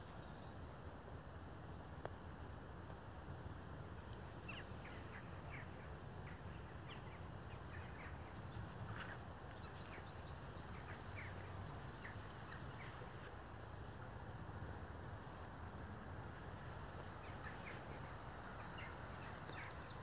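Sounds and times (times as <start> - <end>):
faint low rumble: 0.0 - 20.0
small birds chirping: 4.0 - 13.6, 16.6 - 20.0.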